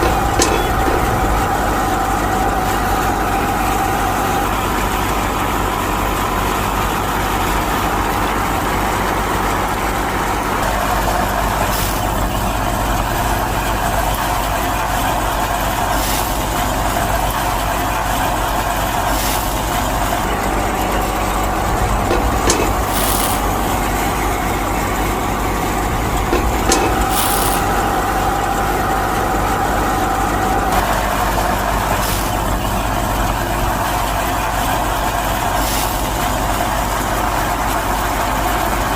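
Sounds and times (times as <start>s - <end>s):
short clicks: 0.0s - 1.5s, 22.1s - 23.6s, 26.1s - 27.8s
thresher motor running: 0.0s - 5.8s, 19.9s - 31.8s.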